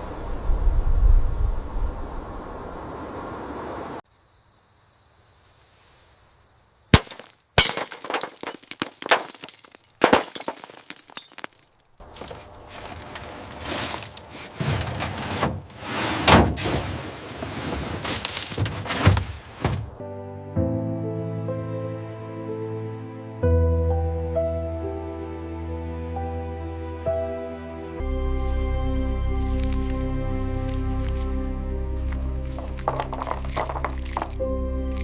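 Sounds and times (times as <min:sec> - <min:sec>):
clattering and smashing: 0:07.0 - 0:11.6, 0:12.2 - 0:19.9, 0:32.6 - 0:34.4
music: 0:20.0 - 0:35.0.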